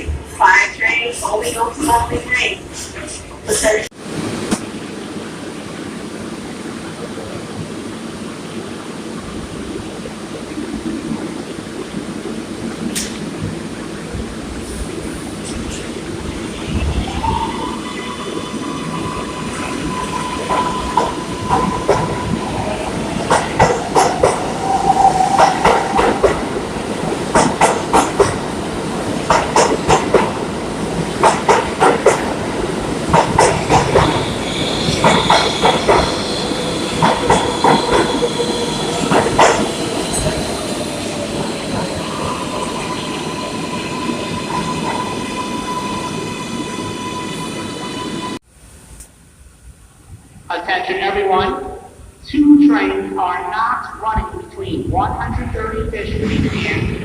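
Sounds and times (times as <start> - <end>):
subway train motor whine: 32.5 - 48.4.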